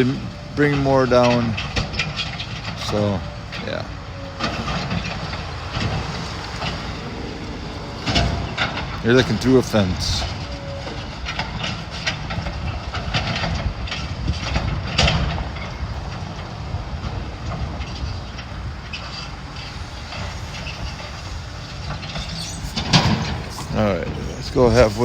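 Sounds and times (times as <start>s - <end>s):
wind buffeting microphone: 0.0s - 25.0s
knocks and clatter: 0.8s - 3.8s, 4.4s - 25.0s.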